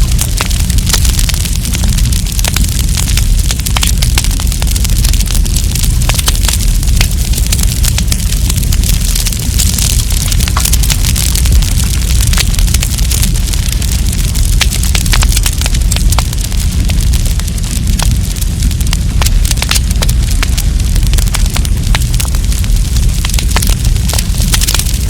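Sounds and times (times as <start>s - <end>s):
campfire burning: 0.0s - 25.0s.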